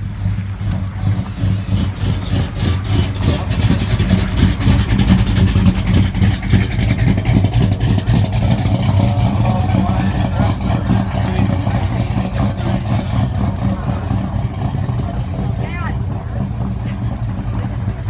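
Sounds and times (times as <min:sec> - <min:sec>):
car engine with pulsing exhaust: 0:00.0 - 0:18.0.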